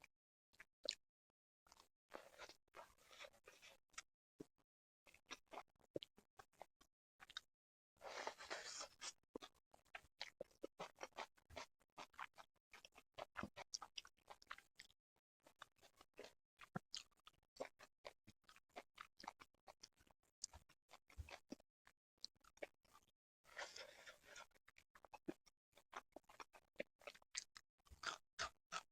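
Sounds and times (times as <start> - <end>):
person chewing with wet clicks: 0.6 - 1.0, 1.7 - 4.1, 5.1 - 7.5, 8.9 - 21.6, 22.2 - 28.9.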